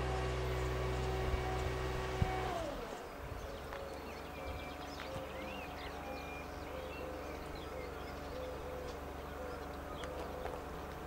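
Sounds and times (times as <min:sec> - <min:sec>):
birds chirping and calling: 0:02.8 - 0:11.0.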